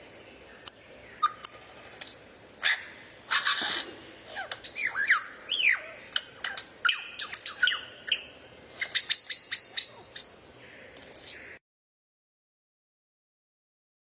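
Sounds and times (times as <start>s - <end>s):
songbird chirps and whistles: 4.4s - 10.4s.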